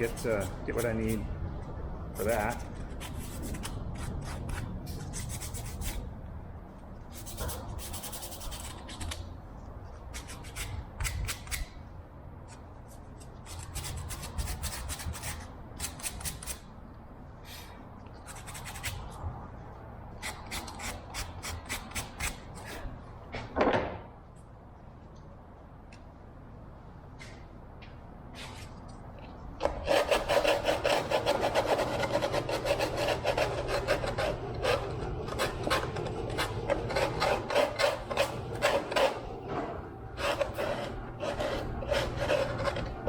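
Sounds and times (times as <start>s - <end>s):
scrapes rubs and clicks: 2.2s - 6.0s, 7.1s - 9.2s, 18.1s - 19.2s, 40.2s - 43.0s
squeaky rub: 40.2s - 43.0s.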